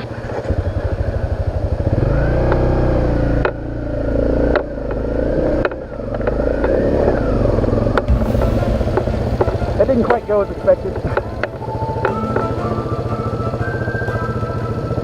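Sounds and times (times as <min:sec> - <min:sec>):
motorcycle engine revving: 0:00.1 - 0:08.1.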